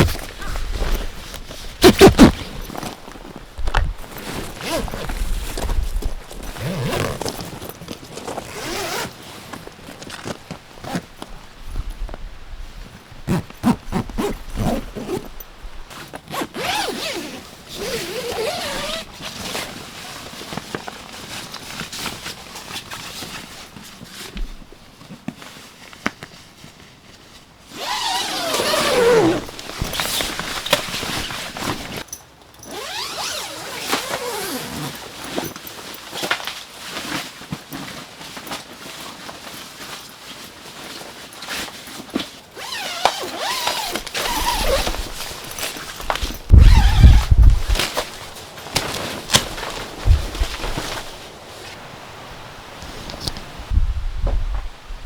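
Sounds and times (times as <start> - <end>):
zipper being pulled: 0.0 - 2.9, 3.6 - 7.6, 8.3 - 9.2, 13.3 - 15.3, 15.9 - 19.6, 27.7 - 32.0, 32.6 - 35.6, 42.6 - 51.2.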